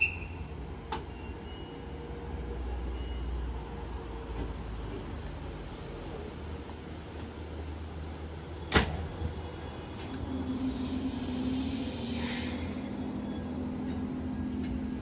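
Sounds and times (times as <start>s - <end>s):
electric train hum: 0.0s - 15.0s
air hiss: 10.9s - 13.0s.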